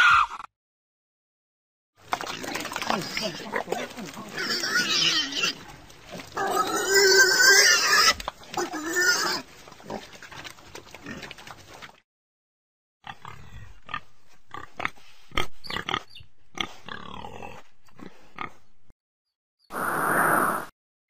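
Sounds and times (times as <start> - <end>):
pig grunting and oinking: 2.1 - 11.9, 13.0 - 18.6.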